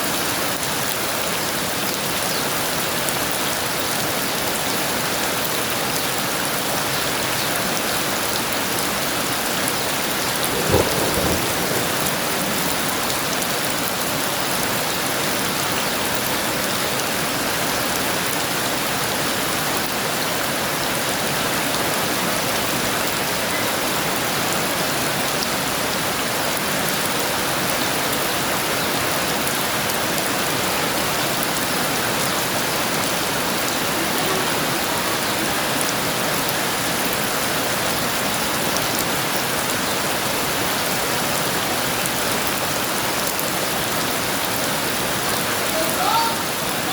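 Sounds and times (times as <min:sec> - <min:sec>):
heavy rain falling: 0:00.0 - 0:46.9
thunder crack: 0:10.0 - 0:14.8.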